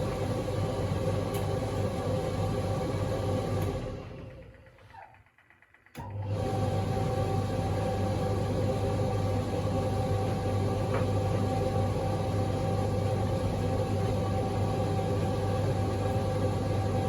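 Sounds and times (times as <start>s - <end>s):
tumble dryer motor hum: 0.0s - 17.0s.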